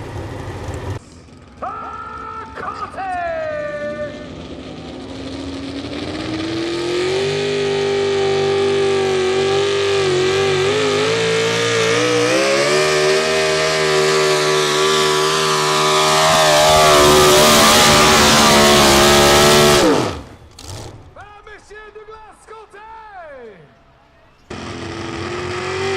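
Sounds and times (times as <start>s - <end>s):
truck engine at high revs: 0.0s - 1.5s, 3.6s - 21.2s, 24.5s - 25.9s.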